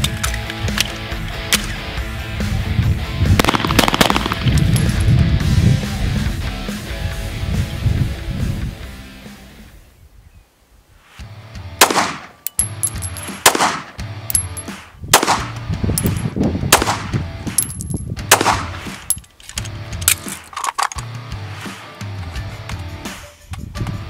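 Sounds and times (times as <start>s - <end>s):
pistol shots: 3.4s - 4.6s, 11.8s - 14.0s, 15.1s - 15.6s, 16.7s - 17.1s, 18.3s - 19.0s.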